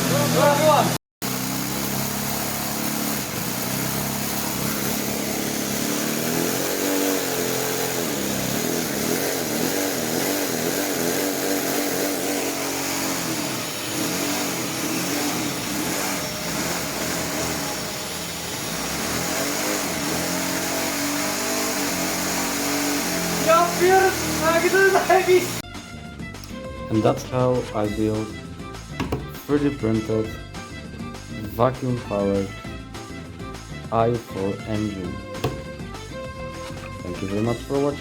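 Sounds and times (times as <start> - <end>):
vacuum cleaner running: 0.0 - 25.6, 35.1 - 35.8, 36.6 - 37.7.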